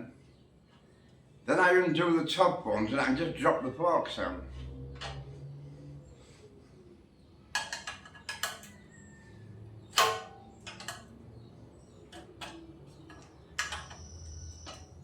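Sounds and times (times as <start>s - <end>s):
spanner clinking on metal bolts: 7.6s - 8.9s, 9.9s - 11.2s, 12.0s - 15.0s.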